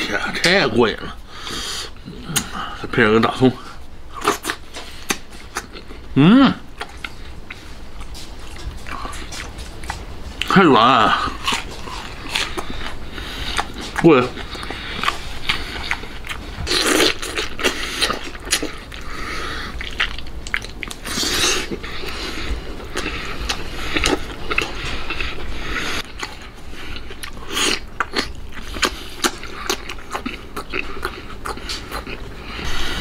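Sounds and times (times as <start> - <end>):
wet chewing and biting: 4.1 - 6.0, 6.7 - 32.8.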